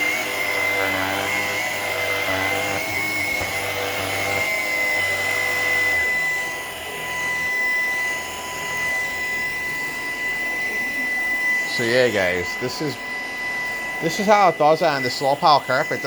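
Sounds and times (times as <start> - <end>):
stick vacuum motor whine: 0.0 - 16.0.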